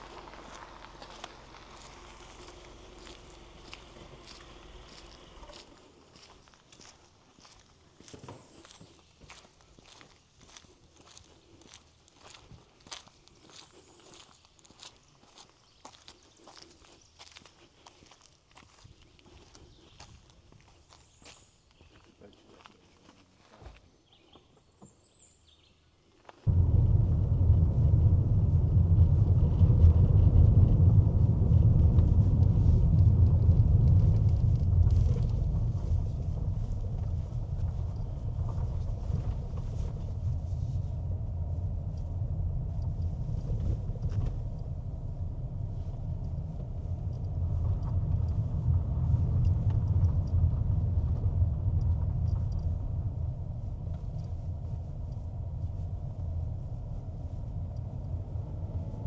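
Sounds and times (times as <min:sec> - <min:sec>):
car engine and road noise: 0:00.0 - 0:05.8, 0:26.5 - 0:59.0.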